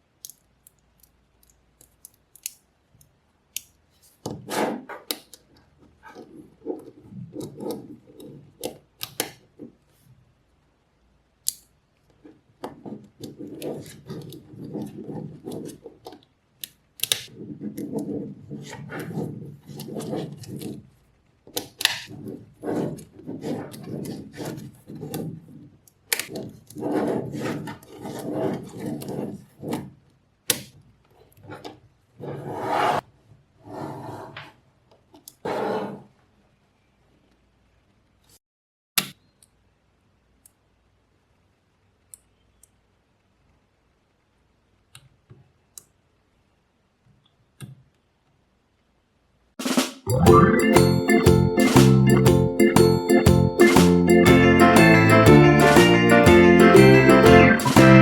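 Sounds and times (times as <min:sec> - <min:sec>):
balls rattling and rubbing: 0:03.8 - 0:10.2, 0:12.0 - 0:16.5, 0:17.3 - 0:30.2
magnetic balls clicking together: 0:50.1 - 0:54.2.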